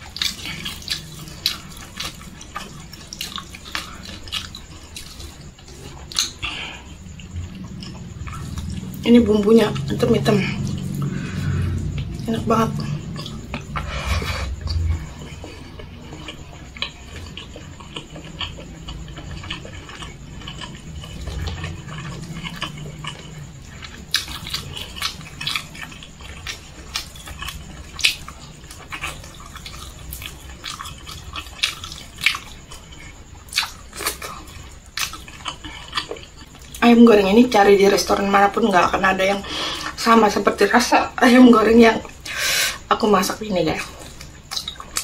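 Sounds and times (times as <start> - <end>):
chewing and lip smacking: 0.0 - 39.1, 42.0 - 45.0.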